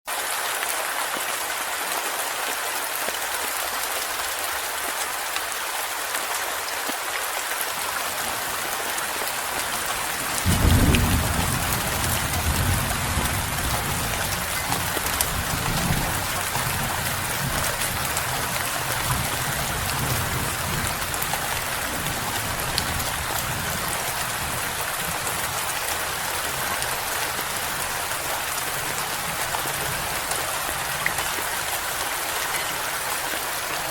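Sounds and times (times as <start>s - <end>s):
heavy rain hiss: 0.2s - 33.9s
thunder rumble: 10.2s - 24.7s.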